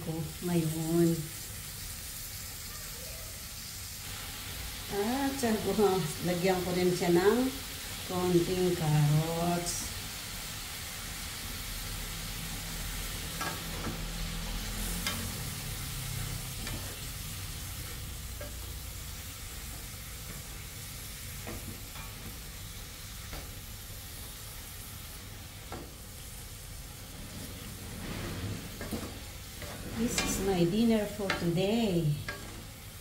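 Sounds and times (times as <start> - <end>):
vegetables sizzling in oil: 0.0 - 33.0
wooden spatula scraping a pan: 13.0 - 18.9, 25.7 - 32.8.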